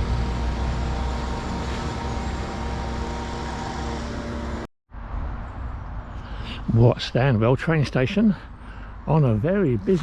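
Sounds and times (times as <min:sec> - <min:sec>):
machinery engine drone: 0:00.0 - 0:04.7.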